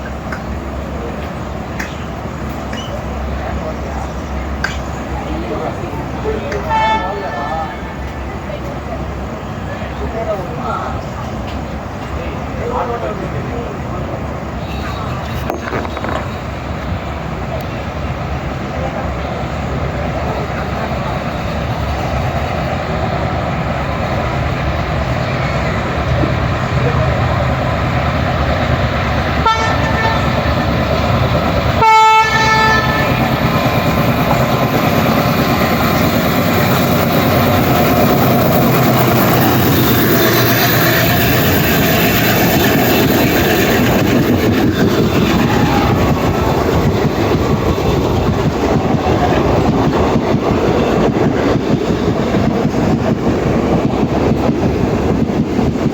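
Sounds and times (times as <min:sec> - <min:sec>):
train wheels rumbling on track: 0:00.0 - 0:55.9
train horn: 0:06.5 - 0:08.0, 0:29.4 - 0:30.4, 0:31.8 - 0:33.2.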